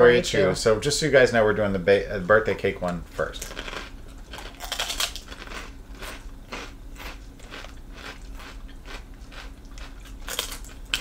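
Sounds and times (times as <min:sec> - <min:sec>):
crunchy food chewing: 0:03.2 - 0:11.0.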